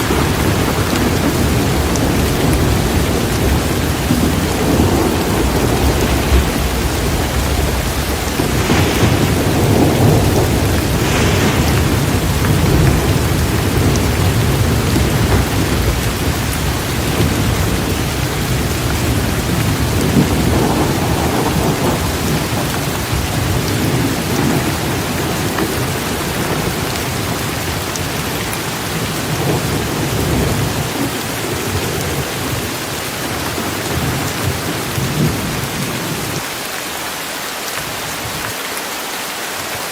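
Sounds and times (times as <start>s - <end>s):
thunder rumbling: 0.0s - 36.4s
heavy rain falling: 0.0s - 39.9s.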